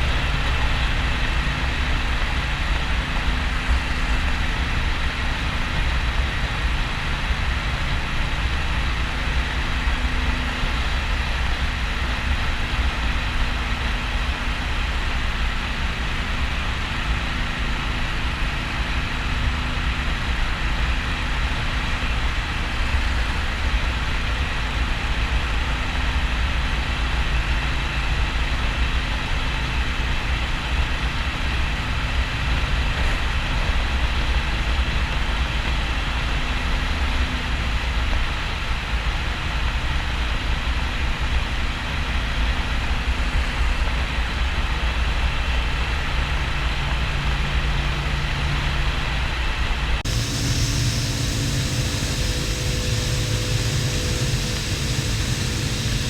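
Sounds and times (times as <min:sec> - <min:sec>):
wind and road noise: 0:48.7 - 0:56.0
motorcycle engine rumble: 0:50.0 - 0:56.0.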